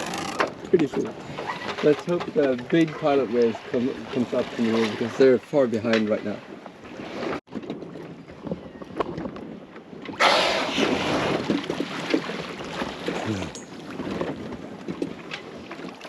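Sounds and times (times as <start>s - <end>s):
water rushing along hull: 0.0s - 16.0s
wind buffeting microphone: 6.2s - 16.0s.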